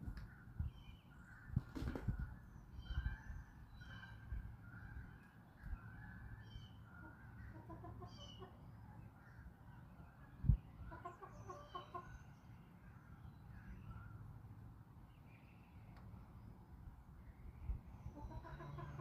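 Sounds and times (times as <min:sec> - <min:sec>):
chickens clucking: 0:07.0 - 0:08.6, 0:10.9 - 0:12.2, 0:18.1 - 0:19.0.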